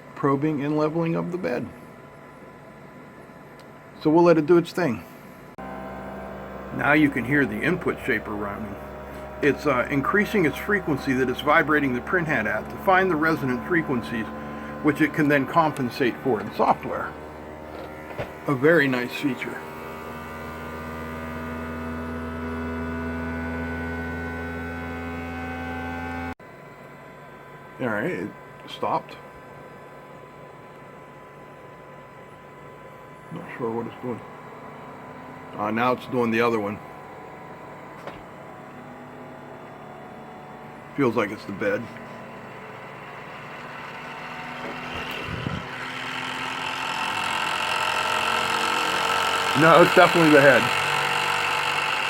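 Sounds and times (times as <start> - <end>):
stepper motors humming rising pitch: 5.6 - 26.4, 32.1 - 52.0.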